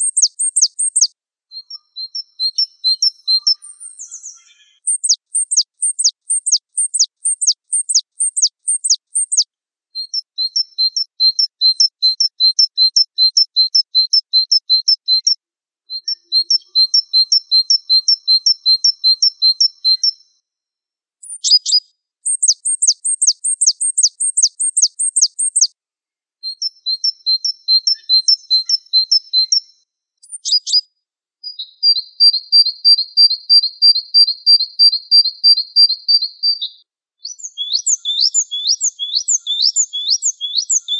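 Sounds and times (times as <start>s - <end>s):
bird singing rapid high notes: 0.0s - 9.4s, 21.2s - 25.7s, 37.2s - 40.9s
bird trill: 0.0s - 9.4s, 10.0s - 20.4s, 21.2s - 25.7s, 26.5s - 30.9s, 31.5s - 40.9s.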